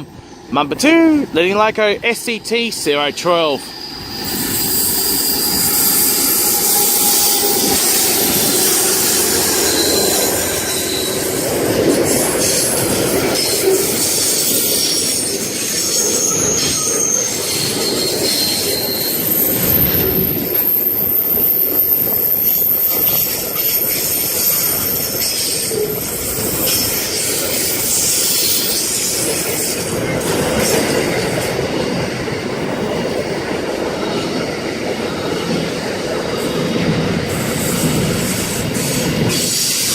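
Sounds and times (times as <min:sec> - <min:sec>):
wheels rumbling on rail: 0:03.1 - 0:39.9
high-pitched wheel squeal: 0:03.7 - 0:12.6, 0:13.4 - 0:29.8.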